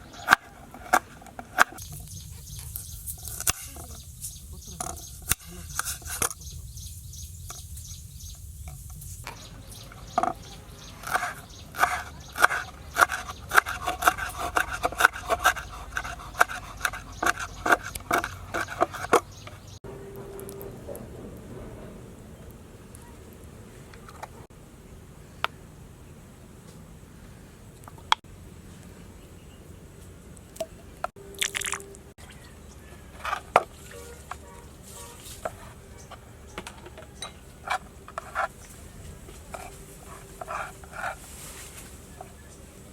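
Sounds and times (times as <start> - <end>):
wet squishy liquid bursts: 31.3 - 31.8.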